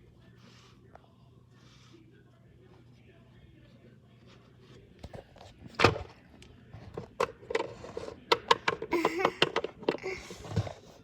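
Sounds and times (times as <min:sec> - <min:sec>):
plastic toy figures knocking together: 0:08.3 - 0:10.0.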